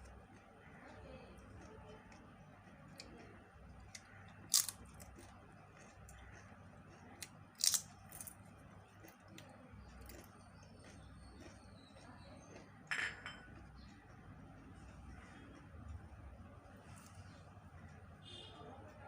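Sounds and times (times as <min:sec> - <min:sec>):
mouth chewing clicks: 0:00.0 - 0:12.9.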